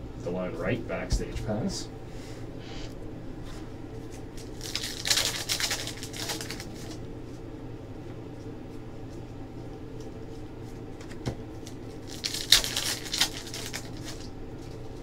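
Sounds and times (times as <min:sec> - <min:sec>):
steady hum: 0:00.0 - 0:15.0
cards and wrappers rustling: 0:04.0 - 0:07.0, 0:10.3 - 0:15.0.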